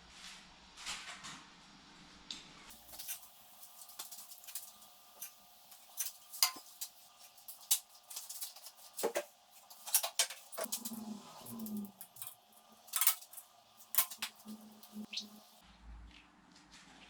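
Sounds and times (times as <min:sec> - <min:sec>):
metal objects clinking: 0:02.7 - 0:15.6.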